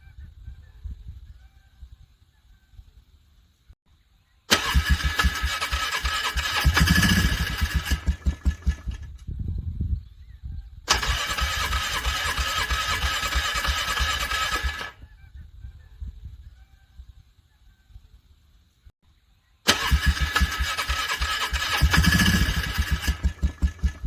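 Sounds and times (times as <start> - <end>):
engine starter cranking: 4.5 - 9.2, 10.9 - 15.0, 19.7 - 24.0.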